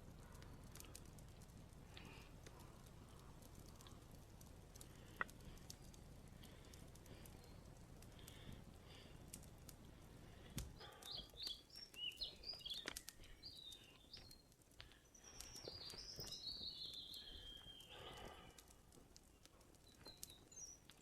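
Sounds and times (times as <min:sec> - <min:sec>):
faint ticks: 0:00.0 - 0:21.0
bird chirping: 0:10.8 - 0:18.4, 0:19.2 - 0:21.0.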